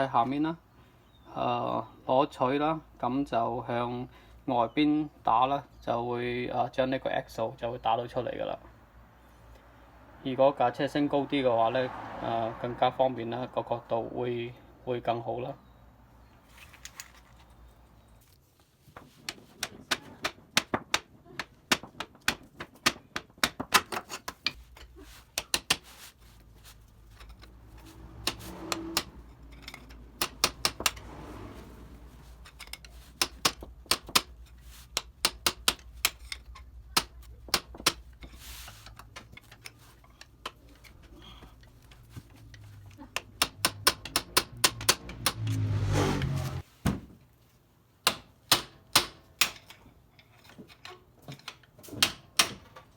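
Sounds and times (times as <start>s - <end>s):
pry bar knocking on metal: 35.0s - 36.4s, 43.2s - 45.4s.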